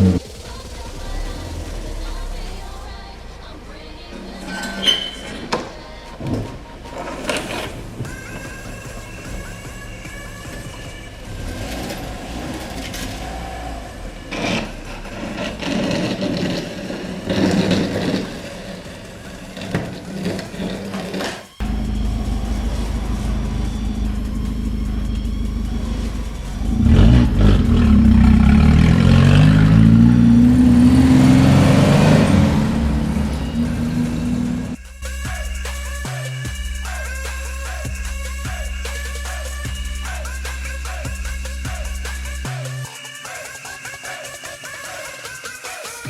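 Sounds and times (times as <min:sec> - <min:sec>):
car engine revving: 0:00.0 - 0:04.4, 0:07.5 - 0:42.9.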